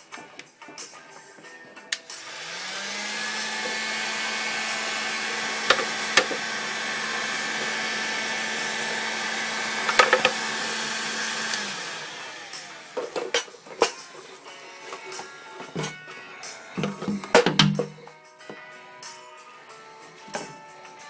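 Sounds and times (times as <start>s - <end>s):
heat gun fan humming: 1.8s - 18.1s.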